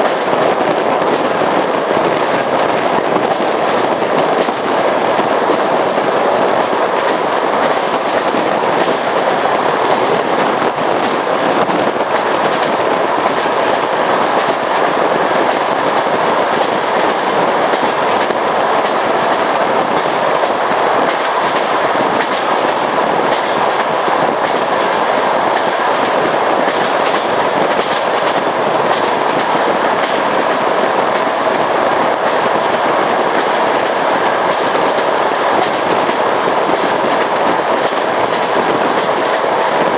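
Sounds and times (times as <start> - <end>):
train wheels rumbling on track: 0.0 - 39.9
wheels clacking over rail joints: 0.0 - 39.9.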